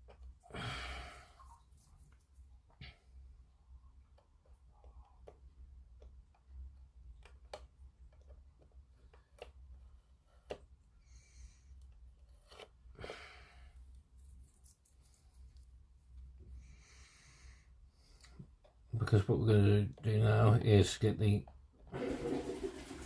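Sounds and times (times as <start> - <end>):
faint plastic clicks: 4.0 - 9.7.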